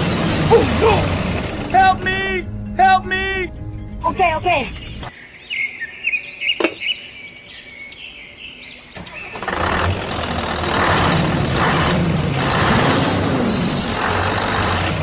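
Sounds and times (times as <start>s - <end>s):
truck engine rumbling: 0.0s - 5.1s, 8.9s - 15.0s
birds chirping: 0.5s - 11.7s.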